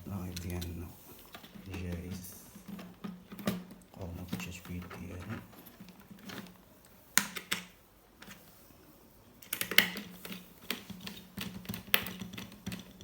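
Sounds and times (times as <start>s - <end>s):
faint low hum: 0.0s - 7.1s
laptop clicks and taps: 9.4s - 13.0s.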